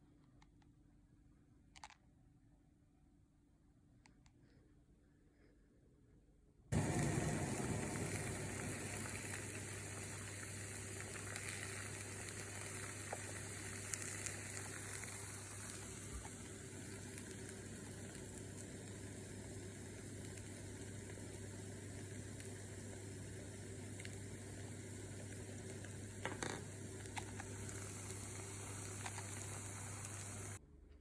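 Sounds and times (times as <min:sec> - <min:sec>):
food sizzling in hot oil: 0:06.7 - 0:30.6
oil popping: 0:06.8 - 0:30.6.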